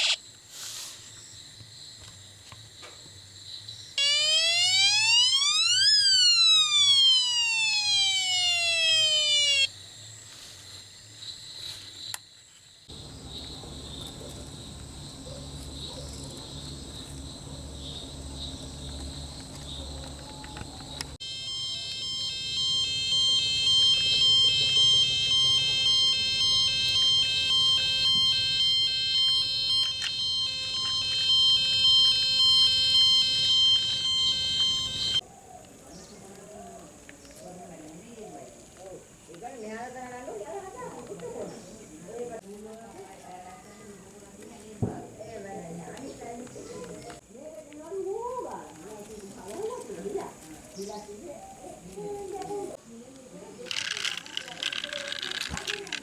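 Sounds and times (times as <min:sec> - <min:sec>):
rising and falling siren sweep: 0:04.0 - 0:09.7, 0:12.9 - 0:35.2
low hum: 0:12.9 - 0:35.2
pulsing high beeps: 0:12.9 - 0:35.2.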